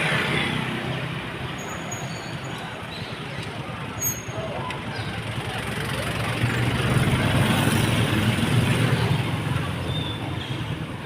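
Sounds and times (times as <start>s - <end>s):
vehicle passing by: 5.2s - 9.9s.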